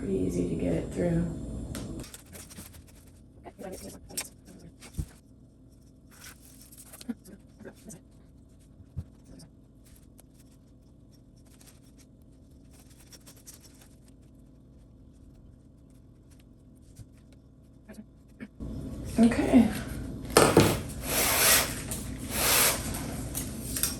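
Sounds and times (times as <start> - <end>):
plastic strand scratching through cane: 2.0 - 5.2, 6.0 - 17.9.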